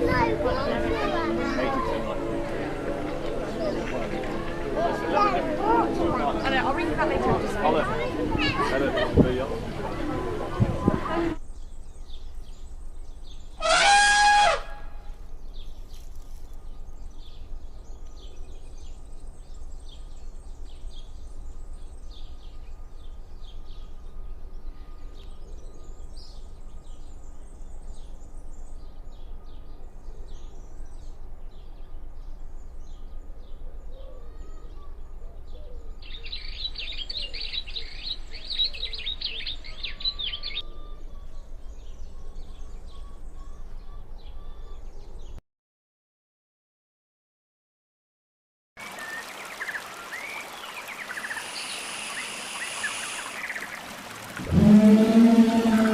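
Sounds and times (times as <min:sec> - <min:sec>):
birds chirping: 0:00.0 - 0:45.4, 0:48.8 - 0:55.9
loud pitched call: 0:13.6 - 0:14.9, 0:54.4 - 0:55.9
dense buzzing: 0:54.4 - 0:55.9.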